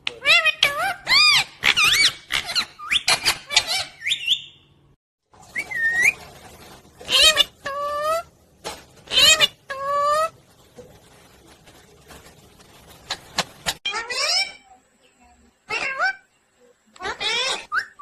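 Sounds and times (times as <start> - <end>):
parrot squeaky calls: 0.2 - 4.6, 7.0 - 8.3, 9.1 - 10.3, 13.7 - 14.6, 15.7 - 16.3, 17.0 - 18.0.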